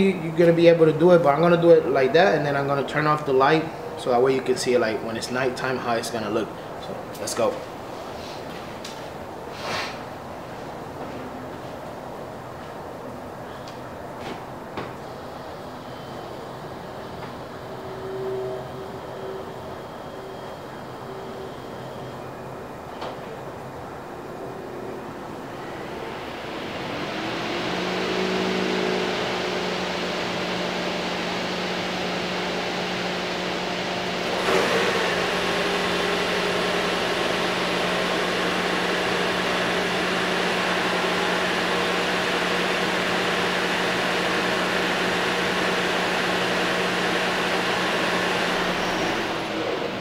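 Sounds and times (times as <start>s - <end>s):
car engine idling hum: 23.5s - 50.0s.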